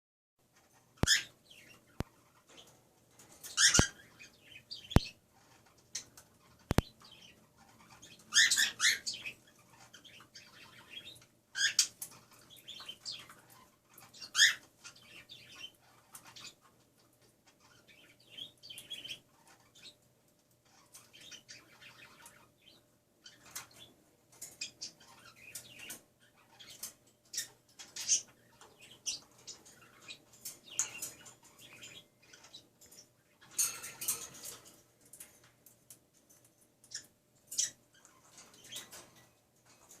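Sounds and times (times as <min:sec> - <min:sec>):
cockatiel chirping: 0:01.0 - 0:02.0, 0:03.5 - 0:05.2, 0:06.7 - 0:11.9, 0:12.5 - 0:16.6.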